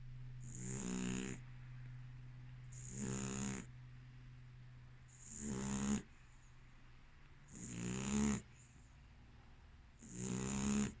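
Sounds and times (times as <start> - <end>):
dog snoring: 0.4 - 1.4, 2.7 - 3.7, 5.1 - 6.1, 7.5 - 8.6, 10.0 - 11.0.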